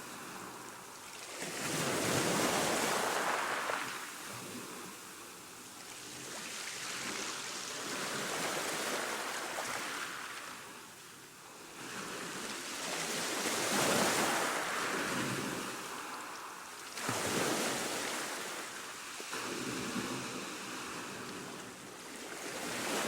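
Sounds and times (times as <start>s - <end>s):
ocean waves washing in: 1.6s - 5.5s, 12.7s - 23.0s.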